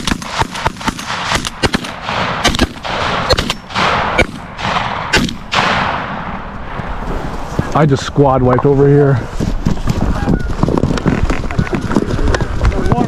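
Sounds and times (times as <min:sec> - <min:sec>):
shotgun shots: 0:00.0 - 0:06.5.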